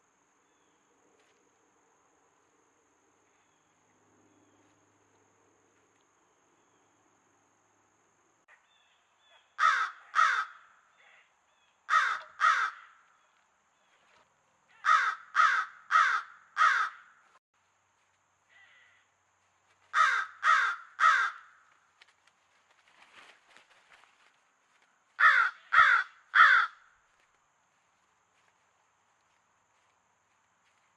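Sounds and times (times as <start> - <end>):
harsh bird caws: 9.5 - 11.0, 11.6 - 13.2, 14.8 - 17.4, 19.9 - 21.8, 25.2 - 27.0.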